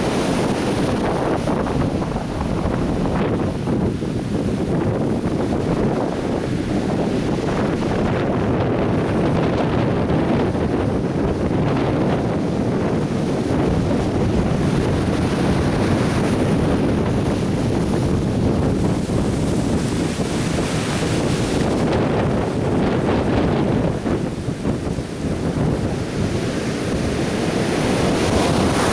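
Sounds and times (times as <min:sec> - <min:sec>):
surf breaking and washing ashore: 0:00.0 - 0:28.9
wind buffeting microphone: 0:00.0 - 0:28.9.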